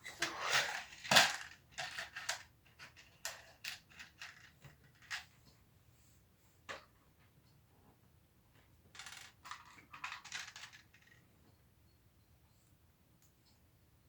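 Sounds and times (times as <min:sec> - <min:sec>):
plastic pieces clicking and rattling: 0:00.5 - 0:05.2, 0:09.0 - 0:11.2.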